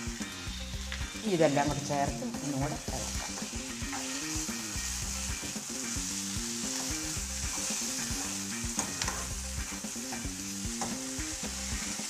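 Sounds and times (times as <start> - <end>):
vegetables sizzling in oil: 0.0 - 12.0
spoon scraping pan: 3.0 - 4.6, 6.2 - 9.4.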